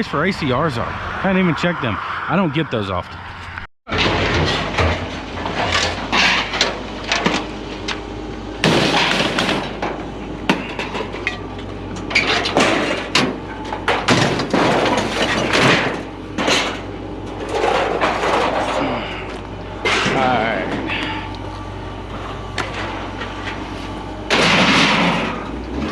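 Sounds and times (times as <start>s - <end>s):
steady low hum: 0.0s - 25.9s
scrap metal clanging onto pile: 3.9s - 7.4s, 8.6s - 10.0s, 12.1s - 16.8s, 24.3s - 25.9s.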